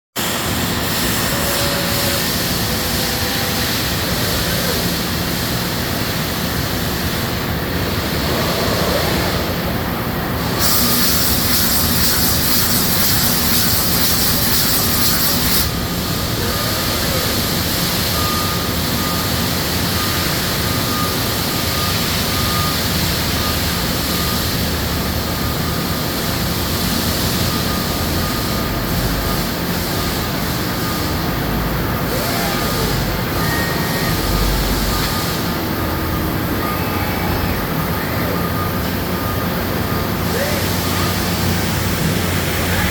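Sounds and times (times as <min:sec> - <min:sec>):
loud hiss: 0:00.2 - 0:19.7
machine tools running: 0:00.2 - 0:42.9.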